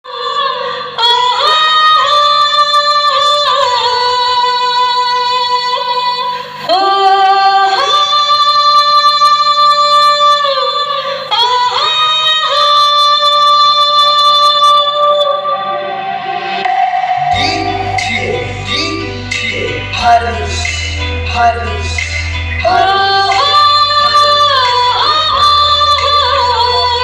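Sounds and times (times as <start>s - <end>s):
music with sliding voice-like melody: 10.5s - 27.0s.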